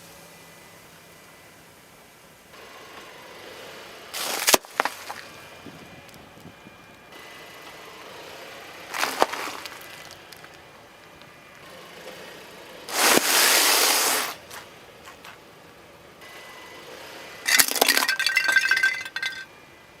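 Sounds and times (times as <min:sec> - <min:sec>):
crunching under car tyre: 0:04.2 - 0:06.7, 0:08.9 - 0:11.3, 0:12.9 - 0:15.4
loud hissing rush: 0:12.9 - 0:14.5.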